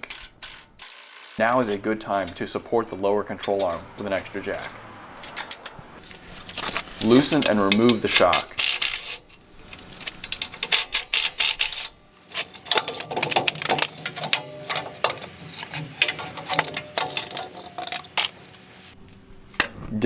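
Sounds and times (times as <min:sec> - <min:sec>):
hand ratchet clicking: 0:06.0 - 0:18.7
metal clinks: 0:06.0 - 0:19.0.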